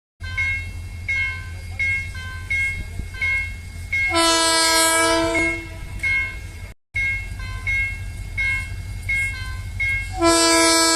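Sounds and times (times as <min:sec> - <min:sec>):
locomotive air horn blast: 0:04.1 - 0:05.9, 0:10.1 - 0:10.9.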